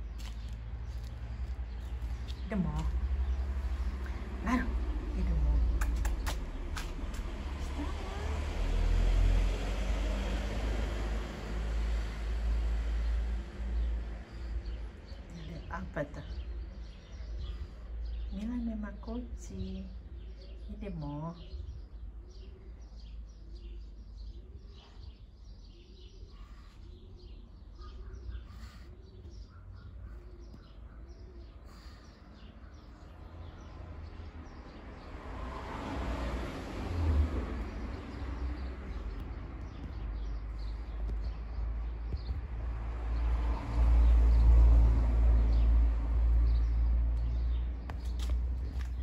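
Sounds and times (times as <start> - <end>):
small birds chirping: 0.0 - 8.8, 10.4 - 35.2, 36.8 - 49.0.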